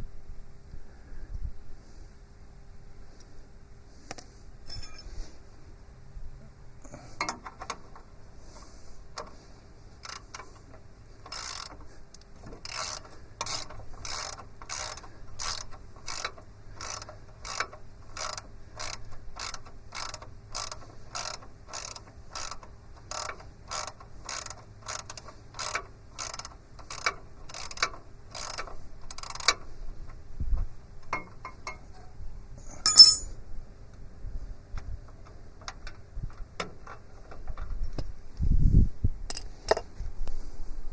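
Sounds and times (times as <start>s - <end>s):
sharp metal clink: 4.7s - 5.1s, 32.8s - 33.4s
ratchet wrench clicking: 10.0s - 30.2s, 32.8s - 33.3s.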